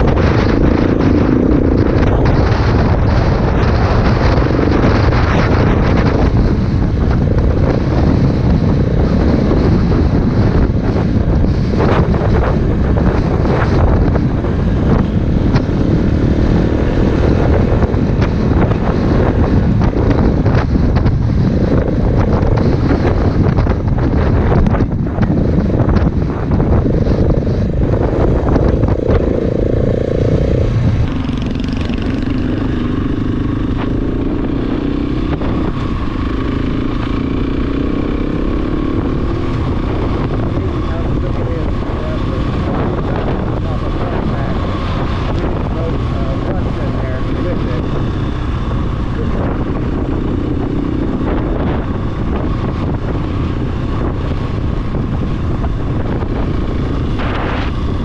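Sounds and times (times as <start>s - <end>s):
motorcycle engine running: 0.0s - 58.0s
wind rumble on microphone: 0.0s - 58.0s.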